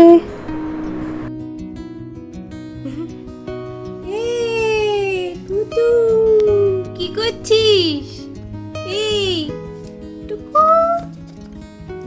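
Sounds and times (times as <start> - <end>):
plucked acoustic guitar music: 0.0 - 12.0.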